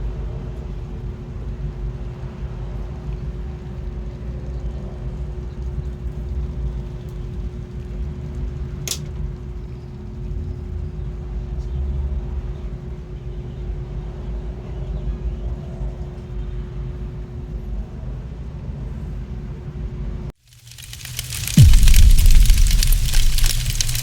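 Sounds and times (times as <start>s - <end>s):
low rumble with hum: 20.7s - 24.0s.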